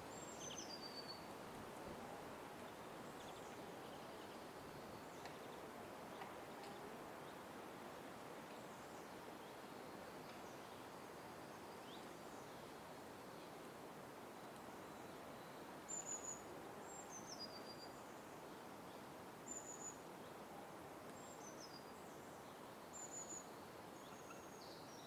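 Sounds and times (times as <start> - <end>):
low background noise: 0.0 - 25.0
faint bird chirps: 18.9 - 20.0, 21.2 - 25.0.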